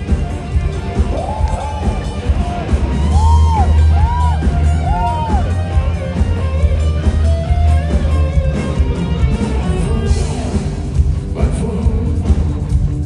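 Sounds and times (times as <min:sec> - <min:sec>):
rock band music: 0:00.0 - 0:13.0.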